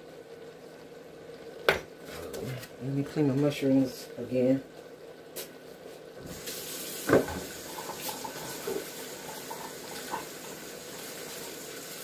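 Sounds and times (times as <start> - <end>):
tap water running into sink: 6.2 - 12.0.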